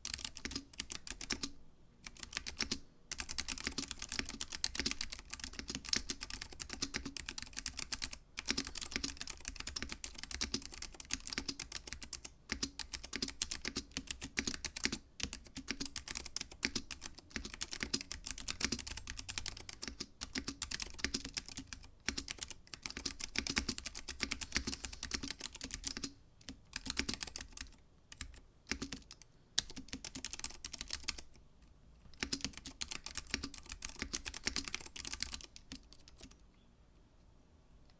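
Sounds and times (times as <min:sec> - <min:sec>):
mechanical keyboard typing: 0:00.0 - 0:31.4, 0:32.1 - 0:36.4.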